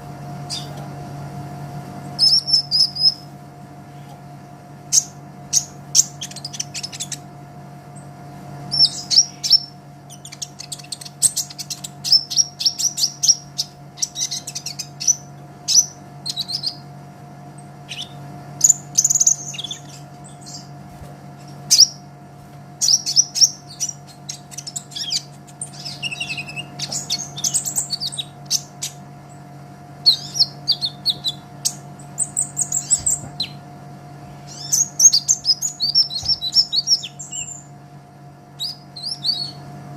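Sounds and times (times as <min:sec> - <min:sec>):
steady low hum: 0:00.0 - 0:39.9
bird chirping and trilling: 0:00.4 - 0:00.8, 0:02.2 - 0:03.3, 0:04.9 - 0:07.3, 0:08.7 - 0:16.9, 0:17.6 - 0:20.8, 0:21.4 - 0:22.2, 0:22.8 - 0:33.6, 0:34.4 - 0:37.8, 0:38.5 - 0:39.6.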